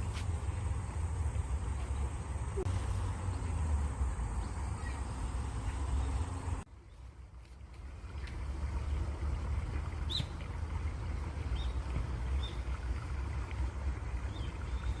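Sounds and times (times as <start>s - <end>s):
stream water rushing: 0.0s - 15.0s
faint bird chirps: 4.4s - 6.3s.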